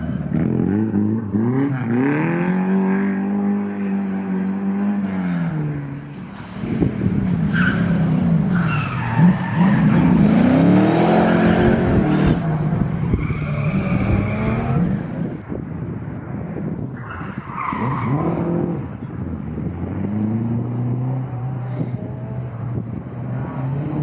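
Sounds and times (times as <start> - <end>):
rally car engine revving: 0.0 - 6.0, 6.7 - 15.4.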